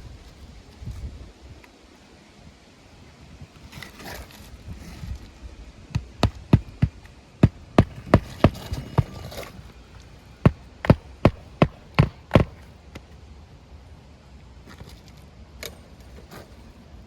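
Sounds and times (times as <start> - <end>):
soft rustling: 2.9 - 12.7
hammer striking nails: 6.0 - 9.5, 10.5 - 12.6.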